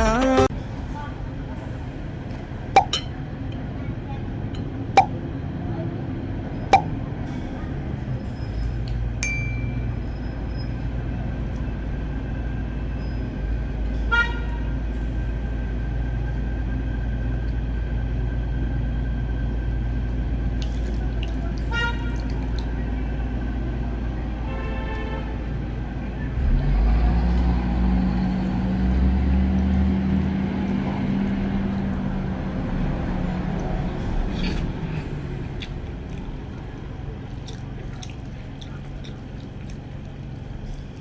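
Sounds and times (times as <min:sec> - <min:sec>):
road traffic rumble: 0:00.0 - 0:41.0
sharp clink: 0:09.2 - 0:10.1
vehicle horn toots: 0:14.1 - 0:14.6, 0:24.4 - 0:25.4.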